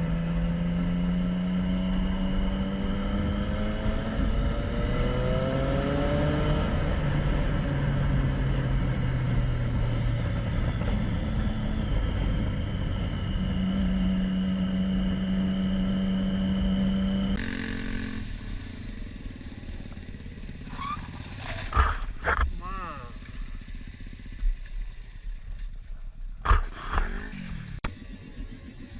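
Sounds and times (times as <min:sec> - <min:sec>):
motorcycle engine accelerating: 0:00.0 - 0:28.9.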